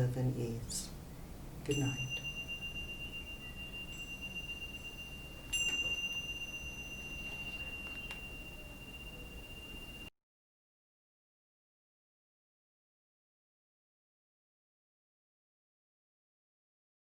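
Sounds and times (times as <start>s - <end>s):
metal chime ringing: 1.7s - 10.1s.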